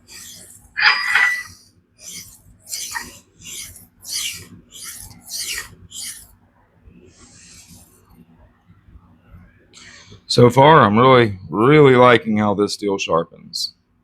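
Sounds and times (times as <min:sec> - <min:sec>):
knife scraping on sharpening stone: 0:00.0 - 0:06.3.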